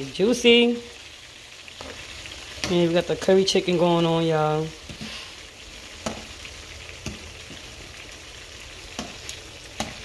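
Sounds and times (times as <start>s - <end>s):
wings sizzling in oil: 0.0s - 10.0s
metal tongs clicking on pan: 8.9s - 10.0s.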